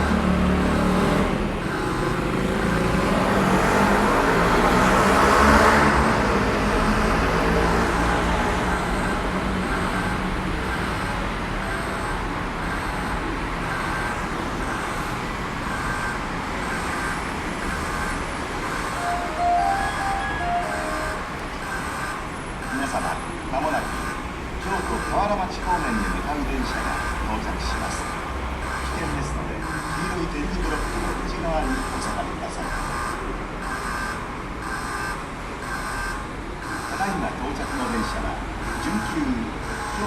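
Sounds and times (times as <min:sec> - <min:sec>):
road traffic noise: 0:00.0 - 0:40.0
short steady tone: 0:18.7 - 0:22.1.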